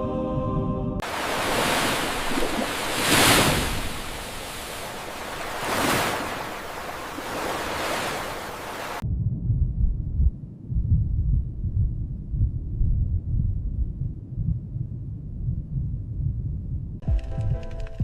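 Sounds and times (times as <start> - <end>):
ocean waves washing: 1.0 - 9.0
low rumble: 9.0 - 17.0.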